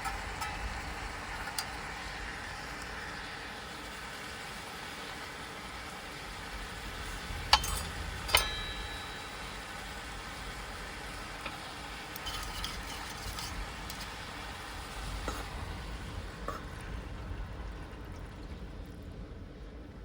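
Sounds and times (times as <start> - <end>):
steady hiss: 0.0 - 17.1
sharp ringing clinks: 7.5 - 10.0.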